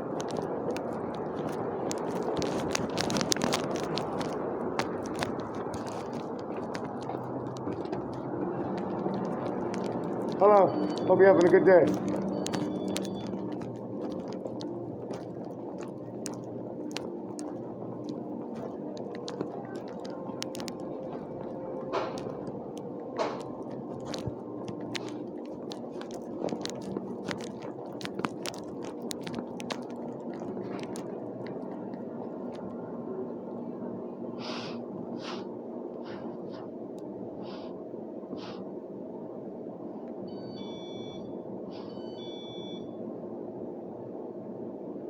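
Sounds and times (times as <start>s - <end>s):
steady background hum: 0.0s - 45.0s
electronic beeps: 10.4s - 13.5s, 40.3s - 43.0s.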